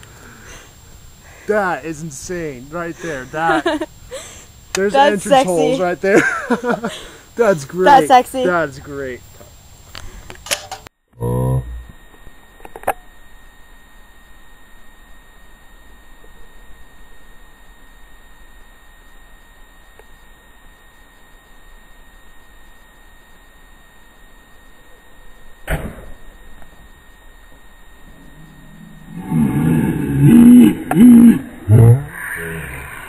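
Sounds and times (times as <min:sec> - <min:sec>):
background hiss: 0:00.0 - 0:10.9
faint high-pitched tone: 0:04.9 - 0:06.0.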